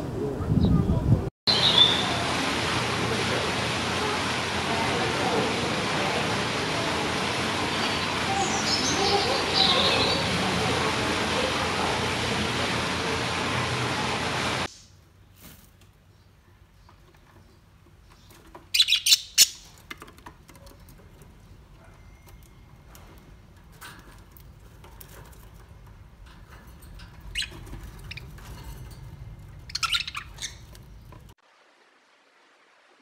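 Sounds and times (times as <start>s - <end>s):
budgerigars chirping and squawking: 7.7s - 11.4s, 18.7s - 19.7s, 27.3s - 28.6s, 29.6s - 30.8s.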